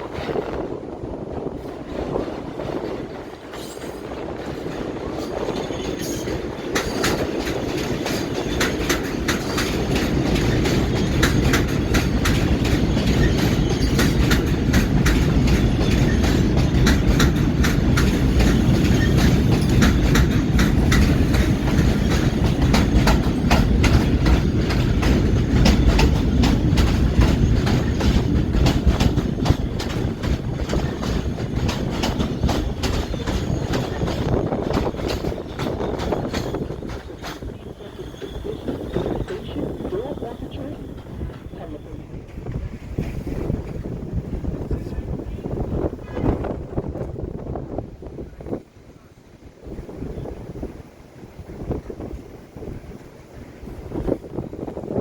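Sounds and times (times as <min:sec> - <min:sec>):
subway train passing: 0:00.0 - 0:55.0
wheels clicking over rail joints: 0:01.4 - 0:43.9.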